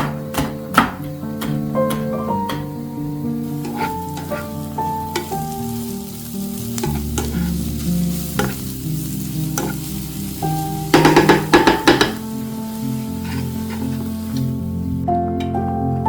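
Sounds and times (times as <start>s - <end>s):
background music with held notes: 0.0s - 16.0s
food sizzling in frying pan: 2.5s - 15.1s.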